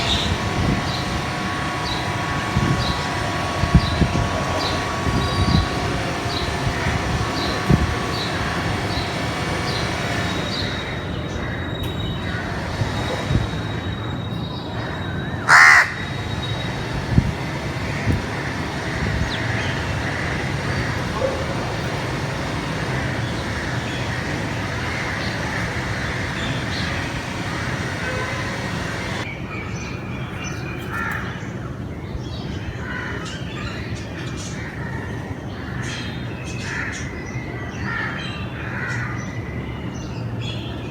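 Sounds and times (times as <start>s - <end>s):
steady background noise: 0.0s - 29.5s
crow cawing: 15.4s - 16.4s.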